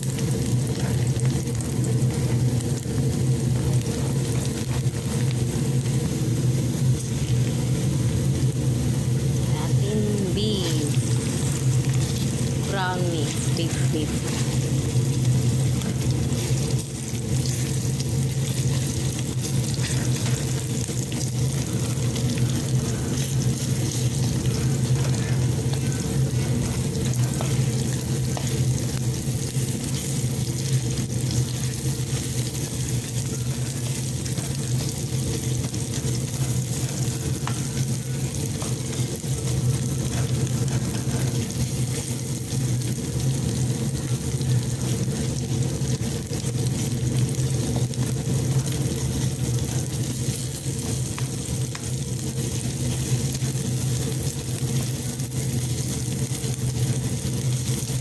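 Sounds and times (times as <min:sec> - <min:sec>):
onion sizzling in oil: 0:00.0 - 0:58.0
low hum: 0:00.1 - 0:46.4
spatula scraping wok: 0:10.9 - 0:14.7, 0:15.4 - 0:42.6.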